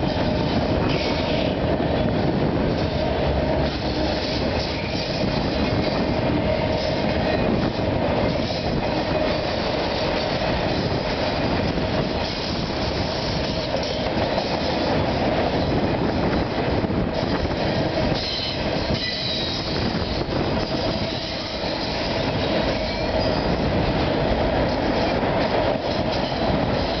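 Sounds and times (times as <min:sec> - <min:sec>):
freight car wheels rumbling: 0:00.0 - 0:27.0
continuous wheel squeal: 0:15.7 - 0:23.7.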